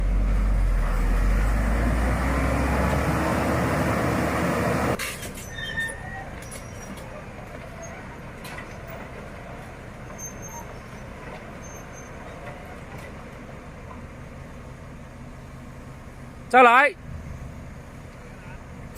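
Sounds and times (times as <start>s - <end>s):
heavy vehicle engine rumbling: 0.0s - 18.9s.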